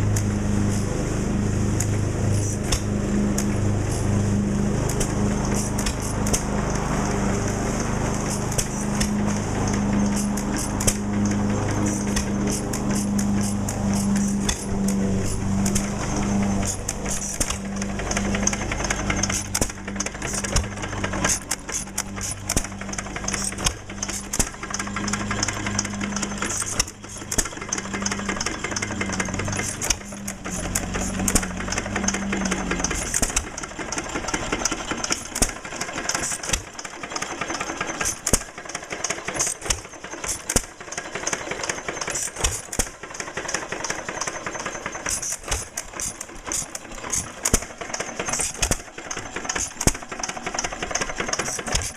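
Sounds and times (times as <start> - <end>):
low pulsing hum: 0.0 - 35.7
engine clattering: 0.0 - 51.9.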